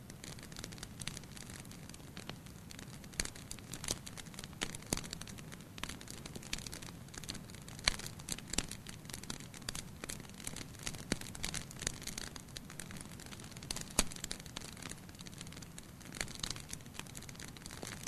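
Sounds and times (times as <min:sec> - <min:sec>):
low fire hiss: 0:00.0 - 0:18.0
wood fire crackling: 0:00.0 - 0:18.0.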